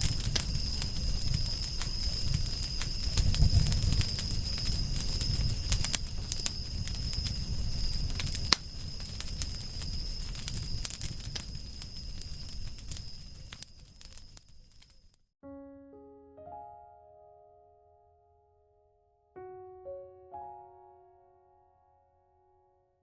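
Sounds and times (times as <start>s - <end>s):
campfire crackling: 0.0s - 15.1s.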